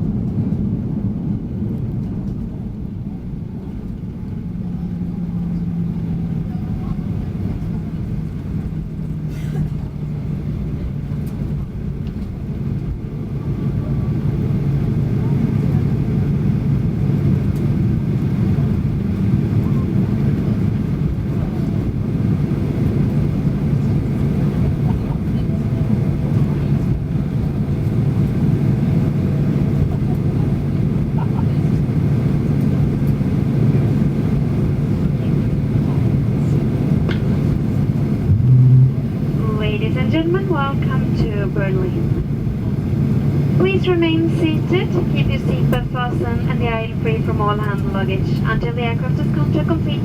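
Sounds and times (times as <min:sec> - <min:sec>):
airplane cabin engine rumble: 0:00.0 - 0:50.0
constant hum: 0:00.0 - 0:50.0.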